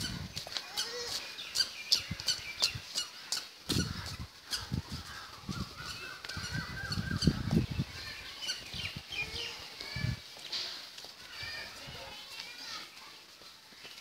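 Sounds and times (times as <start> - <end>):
birds calling: 0.0 - 10.1.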